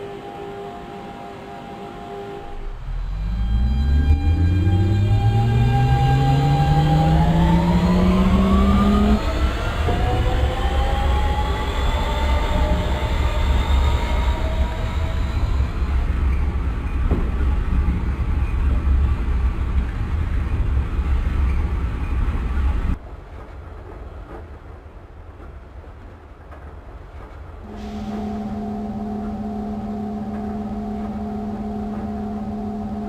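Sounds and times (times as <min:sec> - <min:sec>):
traction motor whine: 0:00.0 - 0:16.1, 0:27.7 - 0:33.0
train running gear rumble: 0:00.0 - 0:33.0.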